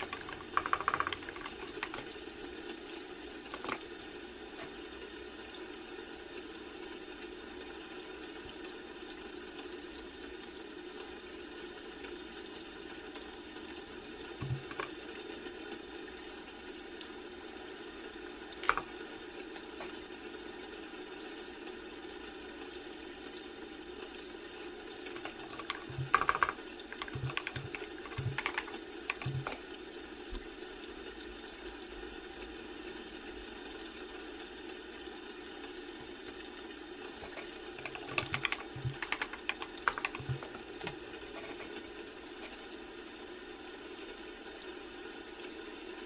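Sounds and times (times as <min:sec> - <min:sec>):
keyboard typing clicks: 0:00.0 - 0:02.2, 0:02.9 - 0:03.9, 0:14.4 - 0:14.9, 0:18.6 - 0:19.0, 0:24.6 - 0:29.8, 0:37.1 - 0:42.6
steady background hum: 0:24.0 - 0:31.2.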